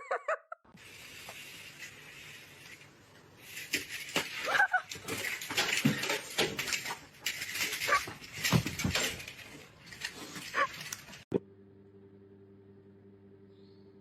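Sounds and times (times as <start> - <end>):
scuffling and knocking: 3.6 - 11.2.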